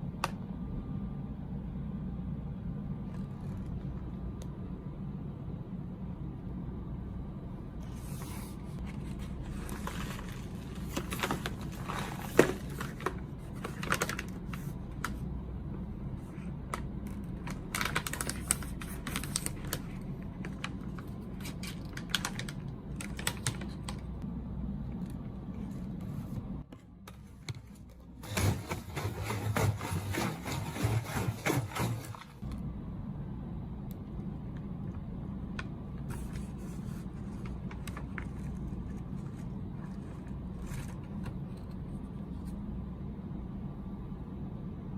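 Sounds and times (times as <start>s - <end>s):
steady low hum: 0.0s - 44.9s
plastic wrapper crinkling: 17.1s - 24.0s.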